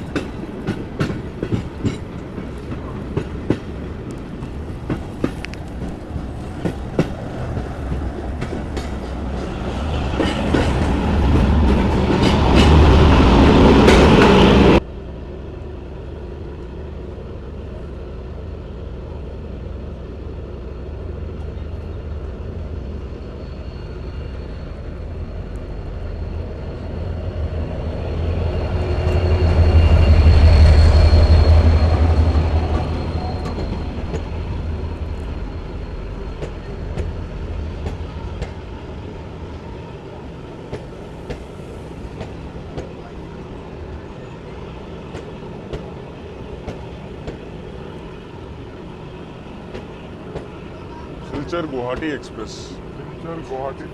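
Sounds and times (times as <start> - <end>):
rail clicks: 0.0 - 14.8, 27.8 - 53.9
train rumbling on tracks: 0.0 - 53.9.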